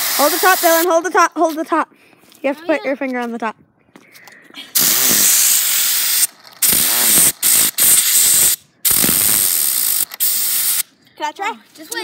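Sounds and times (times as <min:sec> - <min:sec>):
compressed air hissing: 0:00.0 - 0:00.9, 0:04.8 - 0:10.9.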